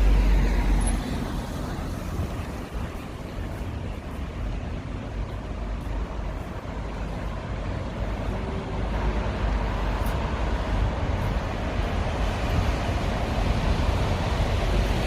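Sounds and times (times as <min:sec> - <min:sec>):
passing vehicles rumble: 0:00.0 - 0:15.0.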